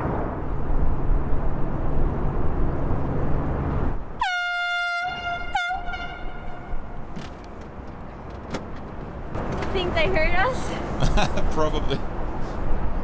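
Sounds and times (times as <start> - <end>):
wind rumble: 0.0 - 4.2
boat horn blasts: 4.2 - 7.0
boat engine: 4.6 - 12.6.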